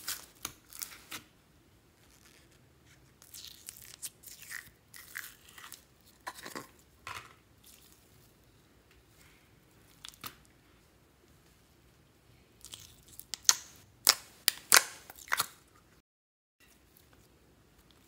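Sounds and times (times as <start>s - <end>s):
slime squelching: 7.6s - 8.4s, 12.6s - 15.6s.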